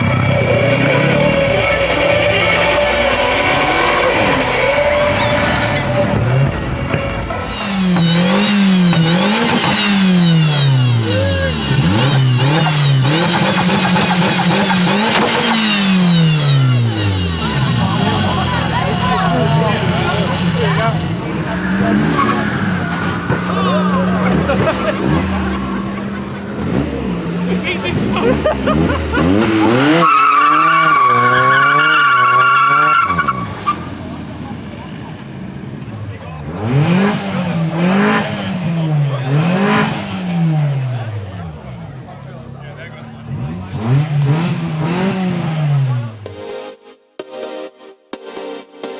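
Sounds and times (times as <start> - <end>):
tyres squealing: 0.0 - 6.8, 7.4 - 24.5
car engine revving: 0.0 - 47.6.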